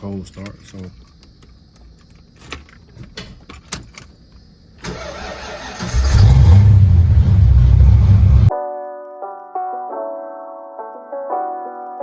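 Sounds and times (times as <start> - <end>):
car keys clicking and rattling: 0.1 - 4.2
car engine starting and running: 4.8 - 8.5.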